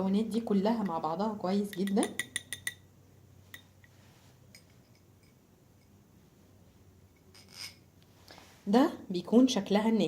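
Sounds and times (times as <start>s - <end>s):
spoon clinking on dish: 1.7s - 2.8s.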